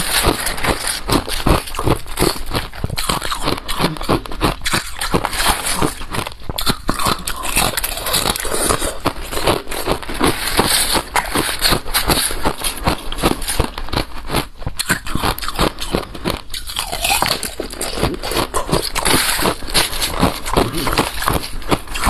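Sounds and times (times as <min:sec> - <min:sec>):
ice being chewed: 0:00.0 - 0:22.0.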